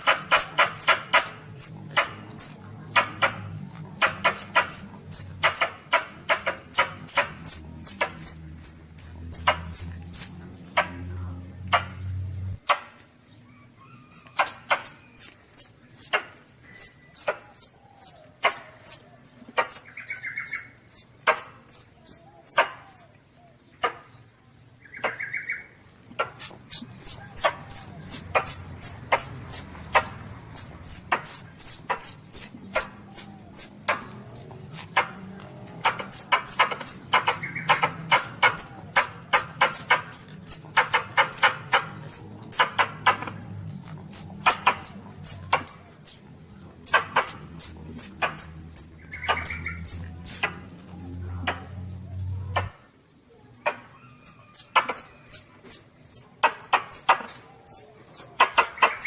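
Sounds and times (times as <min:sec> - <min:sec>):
civet kittens squeaking: 0:00.0 - 0:11.0, 0:13.6 - 0:23.1, 0:26.0 - 0:51.6, 0:53.9 - 0:59.0
low hum: 0:00.0 - 0:12.7
sharp clicks: 0:00.0 - 0:13.0, 0:14.1 - 0:23.2, 0:26.0 - 0:51.9, 0:53.7 - 0:59.0.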